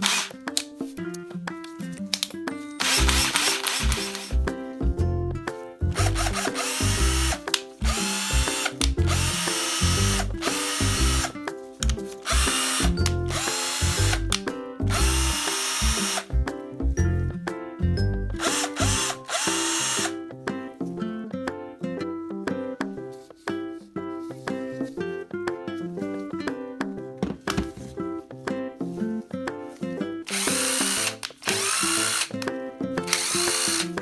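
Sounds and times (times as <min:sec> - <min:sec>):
cordless drill motor whining: 0:00.0 - 0:00.3, 0:02.8 - 0:04.4, 0:06.0 - 0:16.3, 0:18.4 - 0:20.2, 0:30.3 - 0:32.4, 0:33.1 - 0:34.0
background music: 0:00.0 - 0:34.0.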